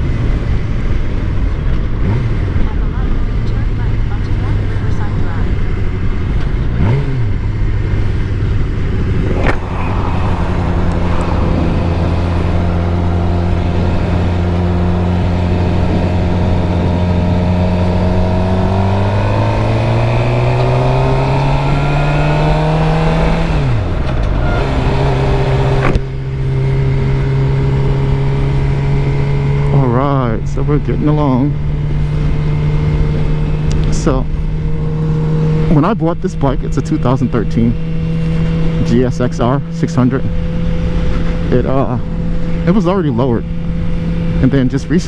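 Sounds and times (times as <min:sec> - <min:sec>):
motorcycle engine running: 0:00.0 - 0:45.0
wind on microphone: 0:08.7 - 0:25.9.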